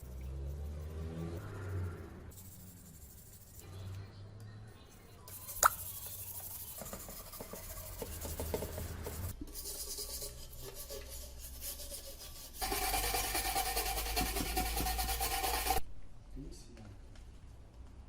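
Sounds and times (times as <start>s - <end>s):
scraping and rubbing on metal: 0.0s - 3.9s, 4.9s - 15.8s.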